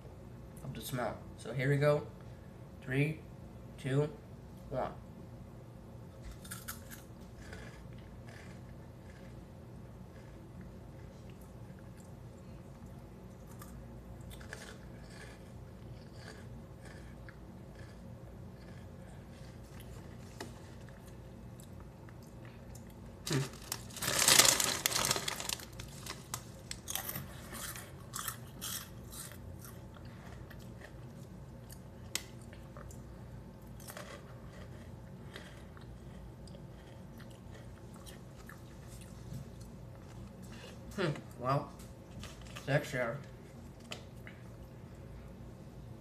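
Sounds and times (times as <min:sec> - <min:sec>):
snack crunching while chewed: 0:06.2 - 0:42.7.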